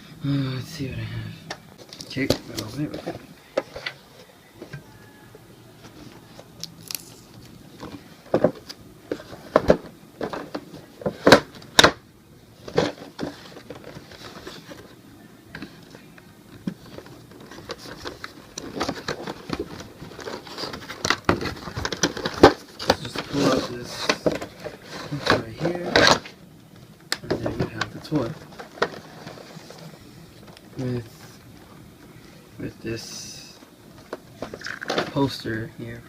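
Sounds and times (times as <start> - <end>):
cardboard packaging crackling: 6.1 - 11.7, 16.6 - 31.2
packaging rustling: 12.6 - 15.0, 16.6 - 31.4.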